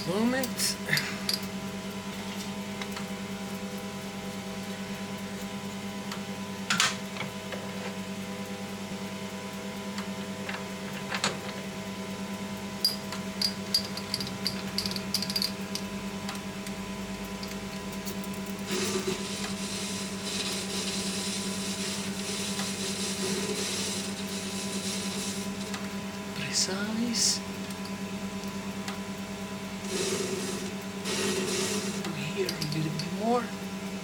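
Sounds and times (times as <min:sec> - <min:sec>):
machine tool motor hum: 0:29.8 - 0:33.2.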